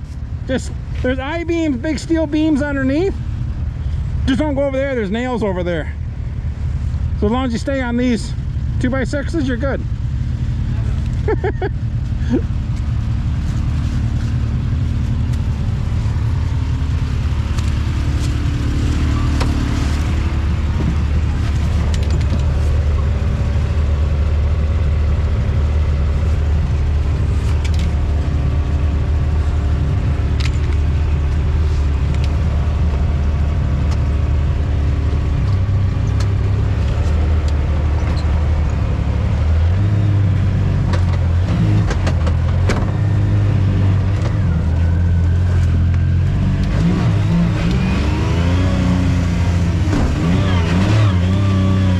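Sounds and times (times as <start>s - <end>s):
off-road vehicle engine droning: 0.0s - 51.9s.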